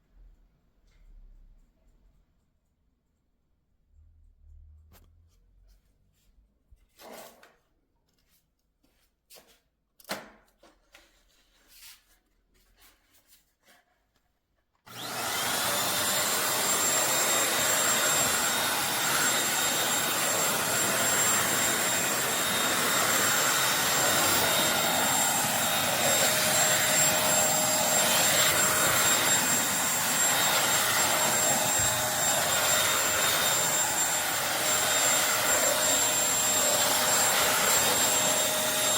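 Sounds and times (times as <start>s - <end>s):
vacuum motor whining: 14.9s - 38.9s.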